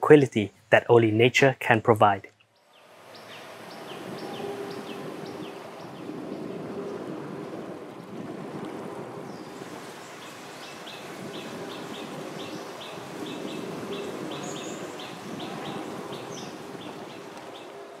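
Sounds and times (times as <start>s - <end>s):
bird chirping: 2.5s - 6.5s, 10.1s - 17.7s
low outdoor rush: 2.6s - 18.0s.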